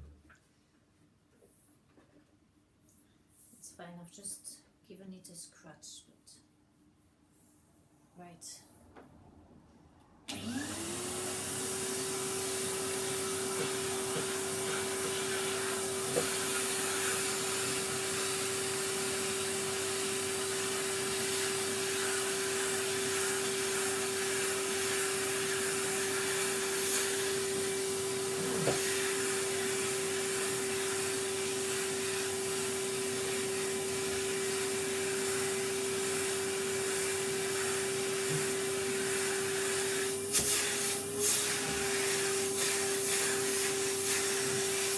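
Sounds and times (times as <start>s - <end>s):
vacuum cleaner running: 10.3s - 44.9s.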